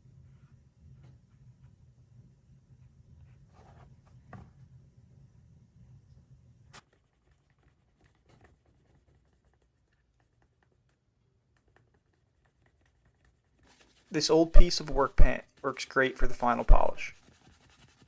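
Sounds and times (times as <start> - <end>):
scratchy rubbing of leather edges: 12.1 - 15.8, 16.5 - 18.0.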